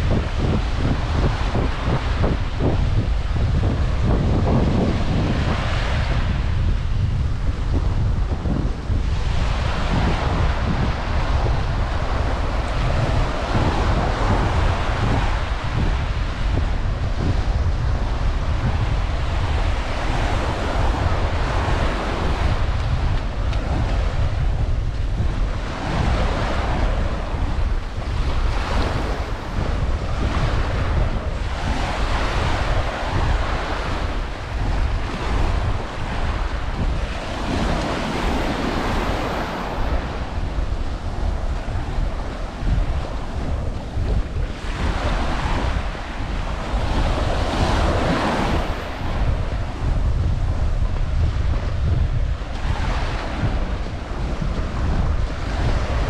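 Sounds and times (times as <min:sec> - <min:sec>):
surf washing onto beach: 0:00.0 - 0:56.0
wind rumbling on microphone: 0:00.0 - 0:56.0.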